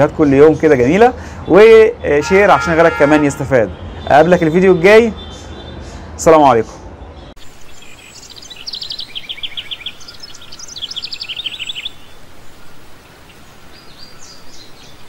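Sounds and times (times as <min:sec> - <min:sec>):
bird singing in trills: 0:04.1 - 0:15.0
steady background hiss: 0:07.4 - 0:15.0.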